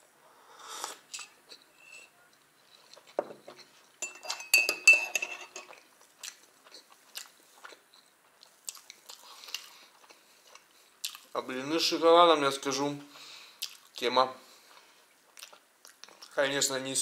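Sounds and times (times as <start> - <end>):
chewing and mouth sounds: 2.6 - 3.2, 5.6 - 11.4, 13.6 - 14.0, 14.6 - 16.4
metal spoon clinking on mug: 4.0 - 5.7.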